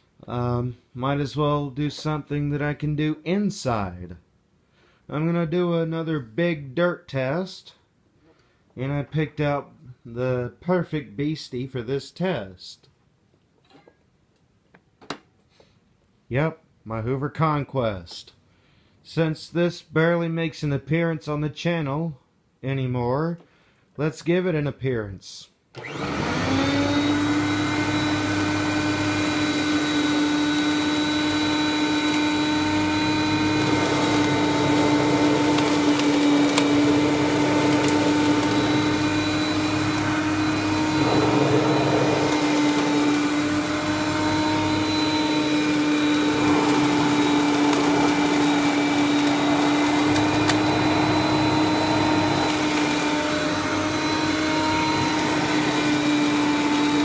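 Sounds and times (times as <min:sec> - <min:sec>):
vacuum cleaner motor hum: 0:25.8 - 0:57.0.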